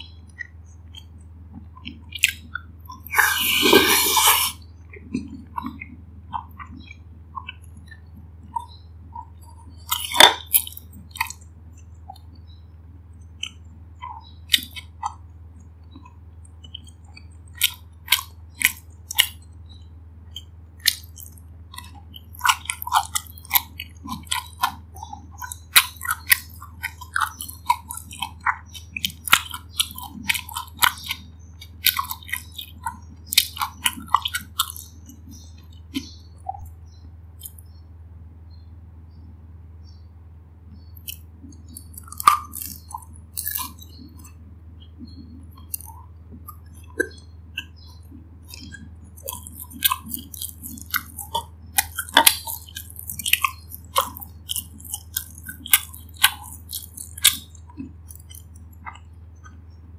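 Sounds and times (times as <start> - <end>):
person chewing food: 0.0 - 37.8, 40.7 - 59.9.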